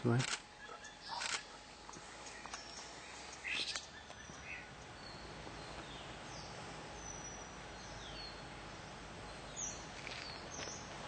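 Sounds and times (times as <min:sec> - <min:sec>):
high bird calls: 0:00.5 - 0:08.4.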